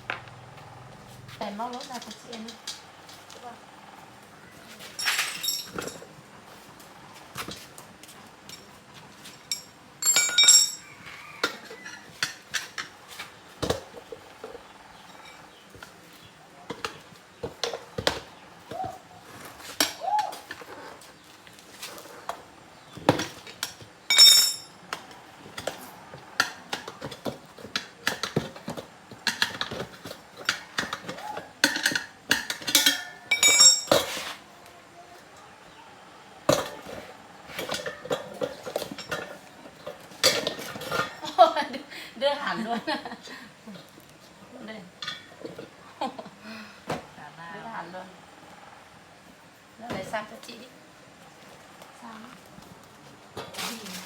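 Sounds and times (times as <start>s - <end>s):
metal tyre tools clanking: 4.8s - 6.2s, 8.4s - 21.0s, 21.9s - 34.4s, 36.5s - 41.6s, 45.0s - 45.7s.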